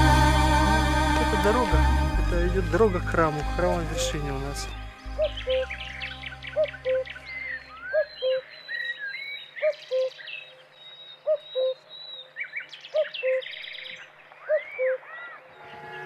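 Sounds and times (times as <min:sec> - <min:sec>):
songbirds chirping and trilling: 0:03.8 - 0:16.0.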